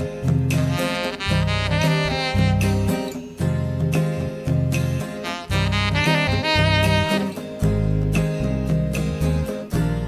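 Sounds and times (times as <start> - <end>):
instrumental jazz music: 0.0 - 10.0
saxophone phrases: 0.6 - 3.1, 5.2 - 7.5.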